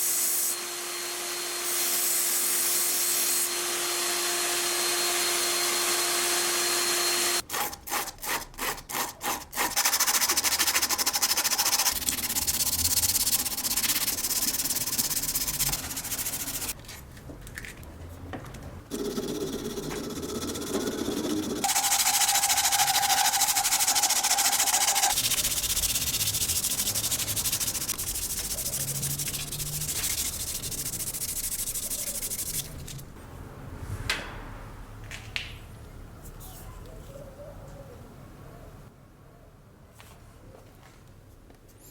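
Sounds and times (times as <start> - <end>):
sanding wood by hand: 7.9 - 16.8, 18.9 - 33.2
machine running: 18.9 - 32.9.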